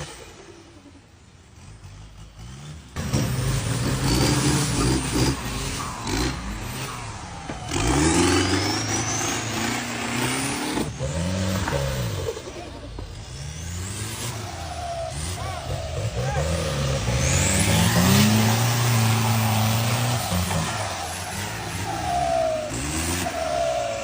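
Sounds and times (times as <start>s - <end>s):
engine revving: 0.0s - 24.0s.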